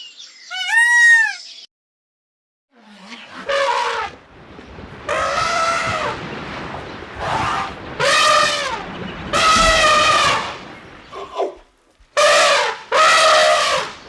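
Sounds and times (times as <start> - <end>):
animal calling: 0.5 - 1.5.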